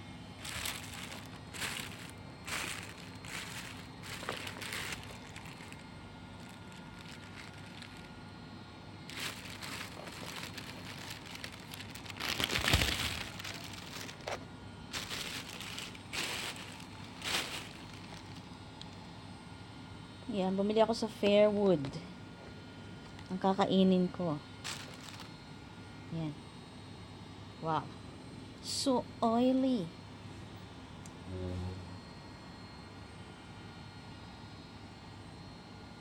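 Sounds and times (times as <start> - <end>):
plastic packaging crinkling: 0.4 - 8.2, 9.1 - 18.5, 24.6 - 25.3.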